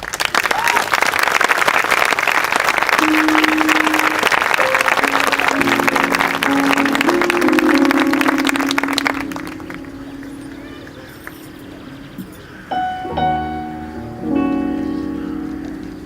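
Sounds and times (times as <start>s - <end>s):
audience applauding: 0.0s - 11.8s
sustained instrumental chords: 3.0s - 16.0s.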